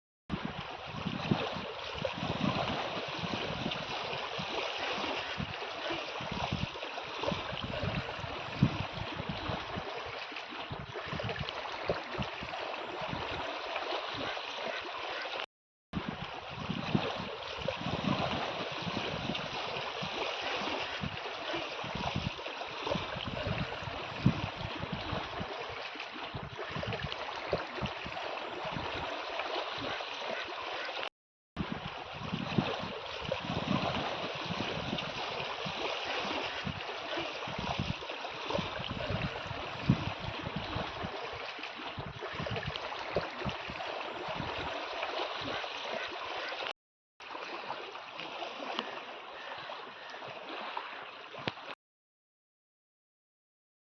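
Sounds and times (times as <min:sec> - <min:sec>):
water washing and splashing: 0:00.3 - 0:51.8.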